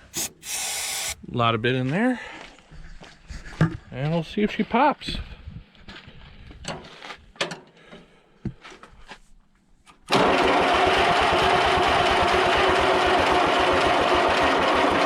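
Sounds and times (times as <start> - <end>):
tractor engine cranking: 10.1 - 15.0.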